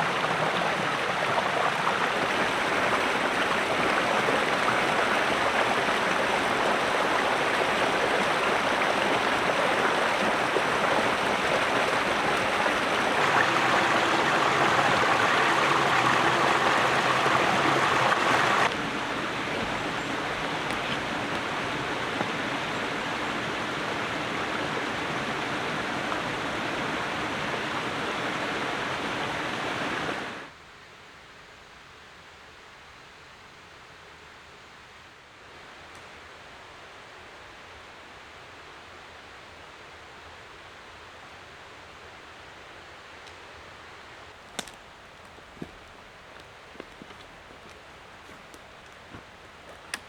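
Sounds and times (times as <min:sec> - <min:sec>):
running water rushing: 0:00.0 - 0:30.5, 0:44.0 - 0:50.0.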